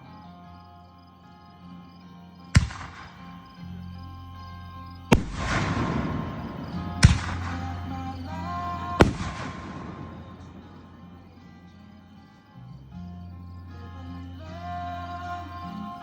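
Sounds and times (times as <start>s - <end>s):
music playing: 0.0s - 16.0s
fireworks booming: 5.1s - 11.5s.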